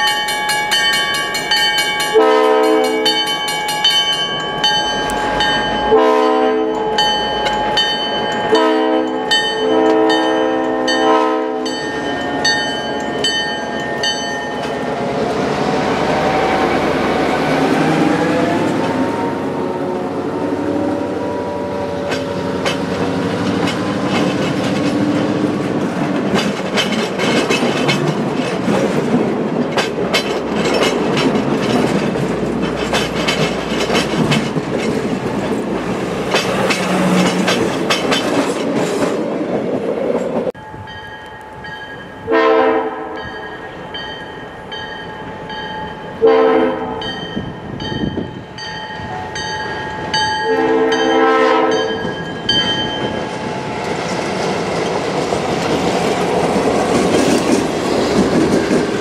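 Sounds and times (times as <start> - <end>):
crossing bell ringing: 0.0 - 15.3, 40.5 - 53.4
locomotive horn blasts: 2.1 - 3.2, 5.8 - 7.0, 8.5 - 11.9, 42.2 - 43.3, 46.2 - 47.1, 50.4 - 52.1
train wheels clicking over joints: 21.9 - 40.6, 52.0 - 59.0.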